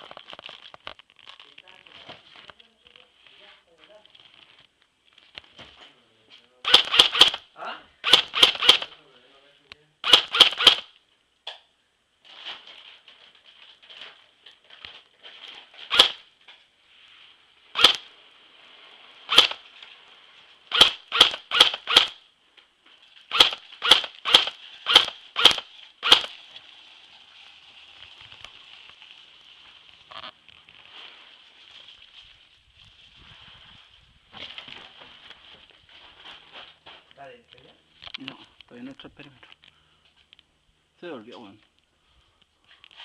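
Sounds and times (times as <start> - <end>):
airsoft gun shots: 6.6 - 7.4, 8.0 - 9.0, 10.0 - 10.9, 15.9 - 16.2, 17.8 - 18.1, 19.3 - 19.6, 20.7 - 22.2, 23.3 - 26.3
faint high-pitched hiss: 10.8 - 20.7.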